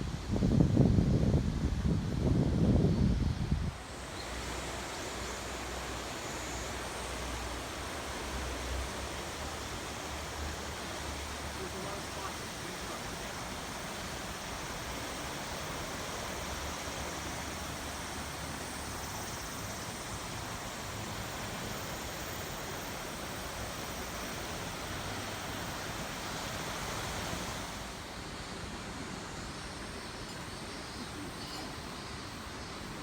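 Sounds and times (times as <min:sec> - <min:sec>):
river water rushing over rapids: 0:03.8 - 0:30.2.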